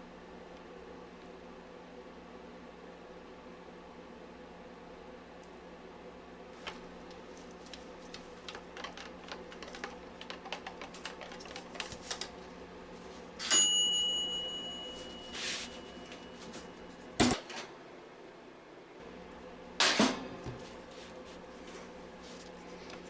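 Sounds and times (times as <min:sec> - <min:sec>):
light clicking and tapping: 0:06.6 - 0:12.5.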